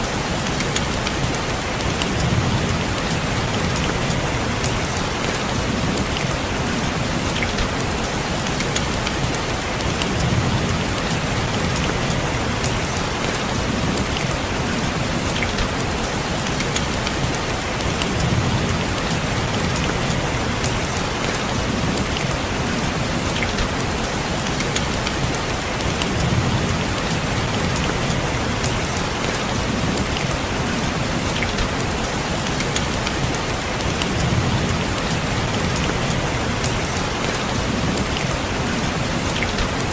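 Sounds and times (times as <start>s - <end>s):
rain on a window: 0.0s - 39.9s.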